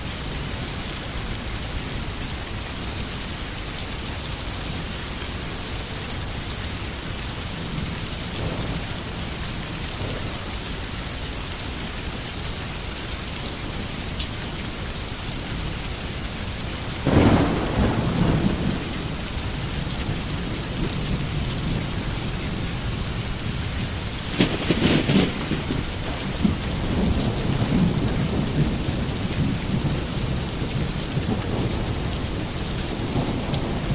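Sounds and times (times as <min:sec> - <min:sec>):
rain falling on trees: 0:00.0 - 0:33.9
thunder rumble: 0:07.5 - 0:10.9, 0:17.0 - 0:33.9.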